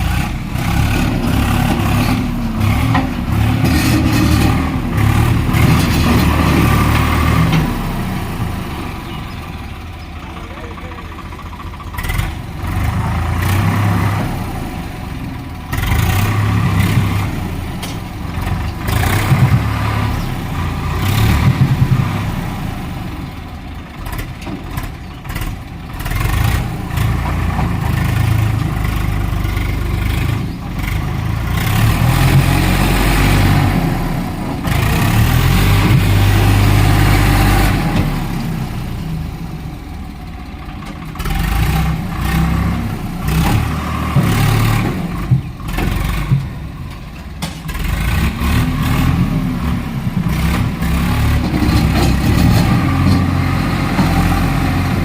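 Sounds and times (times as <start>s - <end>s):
tractor diesel engine revving: 0.0s - 55.0s.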